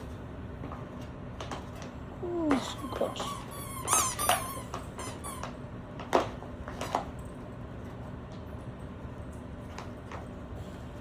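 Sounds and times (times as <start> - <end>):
dog whining: 2.2 - 5.5.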